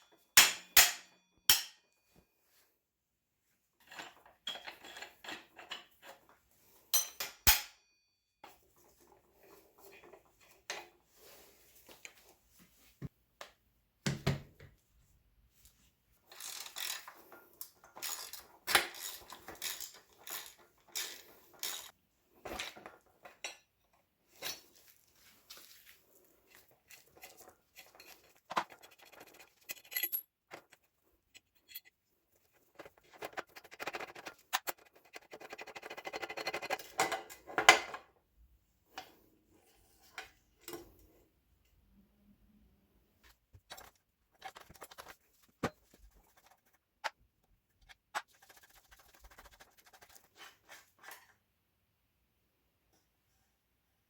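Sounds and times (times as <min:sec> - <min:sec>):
metal tools clinking: 0:16.3 - 0:22.0, 0:26.5 - 0:32.0.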